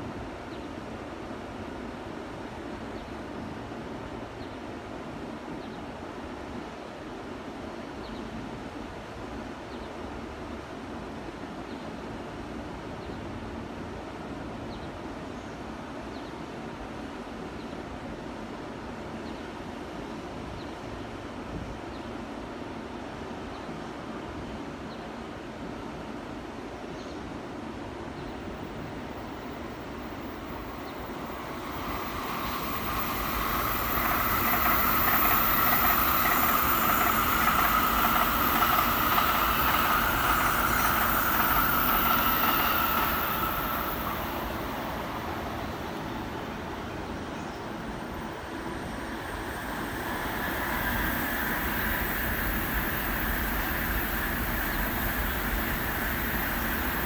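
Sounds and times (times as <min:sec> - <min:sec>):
electric train passing: 0:27.8 - 0:57.0.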